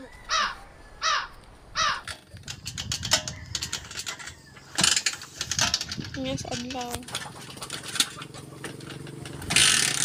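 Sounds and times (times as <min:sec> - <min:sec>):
bird calling: 0:00.0 - 0:02.7
small clattering knocks: 0:02.0 - 0:09.9.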